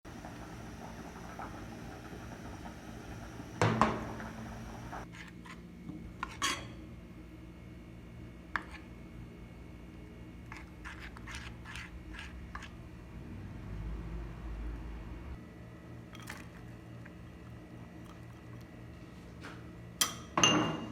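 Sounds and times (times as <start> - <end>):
steady low hum: 0.1 - 5.1.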